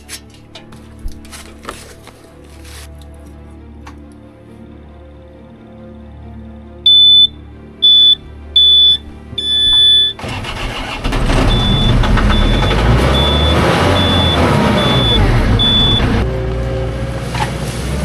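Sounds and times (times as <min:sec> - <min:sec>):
machine warning beeps: 0:06.9 - 0:16.2
reversing alarm beeping: 0:06.9 - 0:16.2
machinery engine running: 0:09.4 - 0:18.0.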